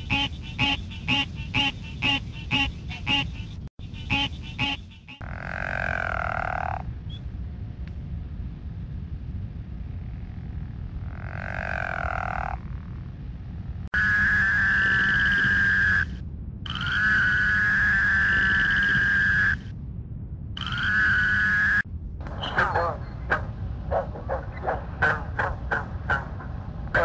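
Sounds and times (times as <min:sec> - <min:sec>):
frog trilling calls: 0:04.0 - 0:06.9, 0:11.0 - 0:12.6, 0:14.0 - 0:19.7, 0:20.6 - 0:21.8.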